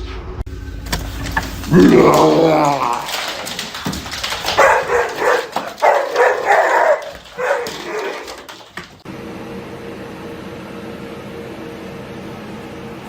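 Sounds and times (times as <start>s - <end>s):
dog barking and whimpering: 4.5s - 8.6s.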